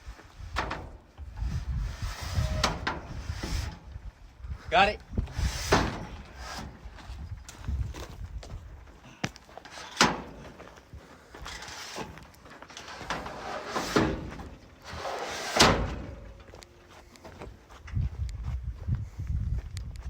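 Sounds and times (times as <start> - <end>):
rustling and scraping: 0.0 - 4.2, 5.1 - 18.2.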